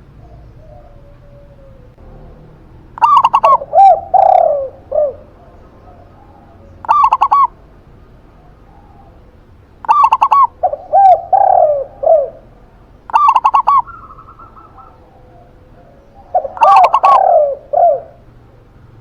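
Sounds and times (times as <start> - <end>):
dove lower slurred coos: 0.0 - 19.0
dove quick clipped cooing: 3.0 - 7.5, 9.8 - 12.4, 13.1 - 18.2.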